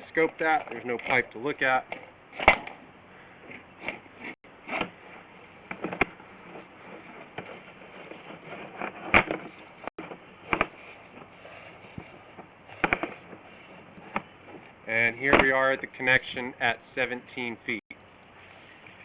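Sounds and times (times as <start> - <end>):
cable knocking and clicking: 6.9 - 11.3, 12.0 - 13.4.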